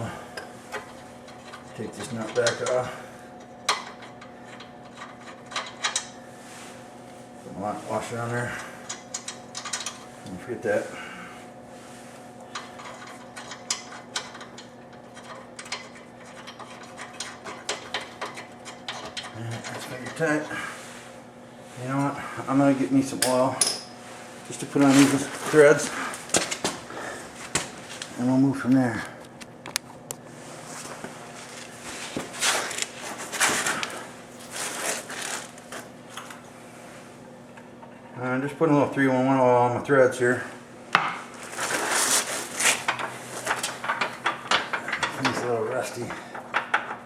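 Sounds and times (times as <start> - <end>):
low background hum: 0.0 - 47.0
scuffing and rustling handling: 30.2 - 36.5.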